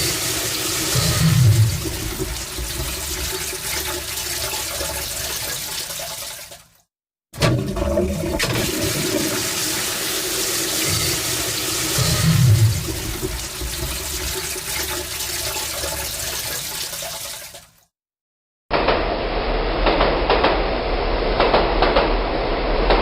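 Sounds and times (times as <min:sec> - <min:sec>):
toilet flushing: 0:00.0 - 0:06.7, 0:07.4 - 0:17.8.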